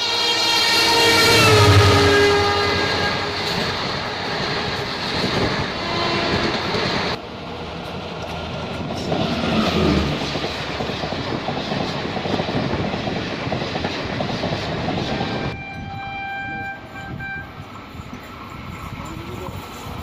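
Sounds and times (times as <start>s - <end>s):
steady horn-like tone: 0.0s - 4.3s, 15.2s - 17.6s
train wheels clattering: 7.8s - 15.6s.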